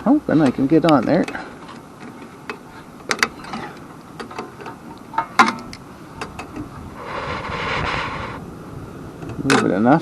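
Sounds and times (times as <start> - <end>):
soft rushing noise: 5.8 - 9.2.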